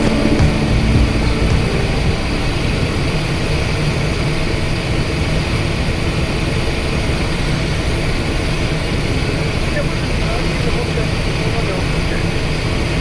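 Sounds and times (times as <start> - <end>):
jet cockpit noise: 0.0 - 3.7.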